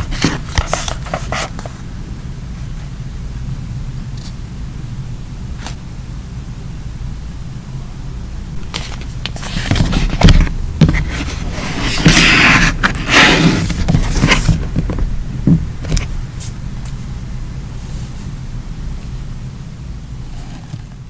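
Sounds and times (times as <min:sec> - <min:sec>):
paper rustling: 0:00.0 - 0:01.9, 0:08.6 - 0:17.0, 0:20.2 - 0:21.0
steady low hum: 0:00.0 - 0:21.0.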